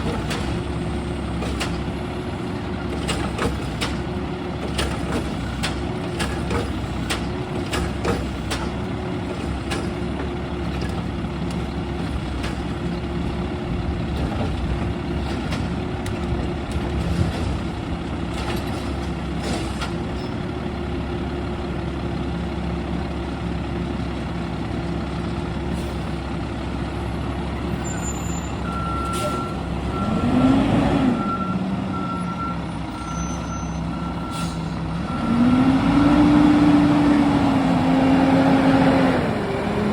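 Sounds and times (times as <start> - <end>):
garbage truck diesel engine running: 0.0 - 39.9
knocks and clanks: 2.9 - 11.6, 14.1 - 20.2
reversing alarm beeping: 27.8 - 36.2.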